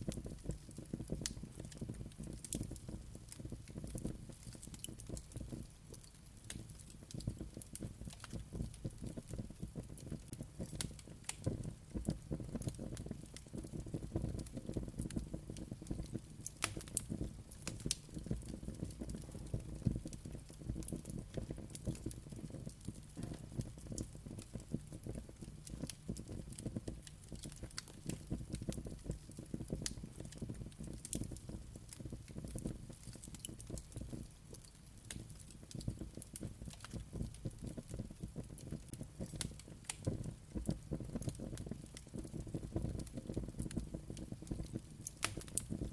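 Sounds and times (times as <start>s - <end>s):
low rumble of flames: 0.0s - 45.9s
sharp pops and snaps of fire: 0.0s - 45.9s
wood fire crackling: 0.0s - 45.9s.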